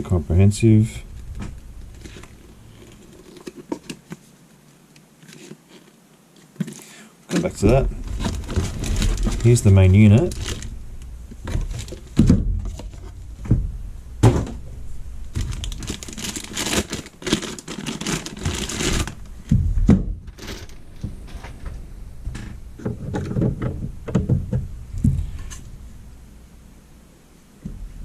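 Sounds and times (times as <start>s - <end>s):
packaging rustling: 1.0s - 4.3s, 5.2s - 13.2s, 15.2s - 19.5s.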